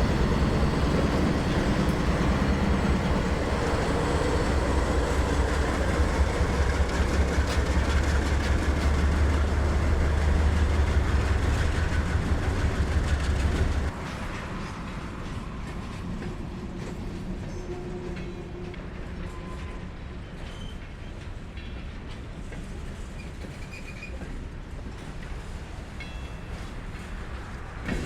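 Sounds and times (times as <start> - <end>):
wheels clicking over rail joints: 0.0 - 17.0
freight train rumbling: 0.0 - 28.0.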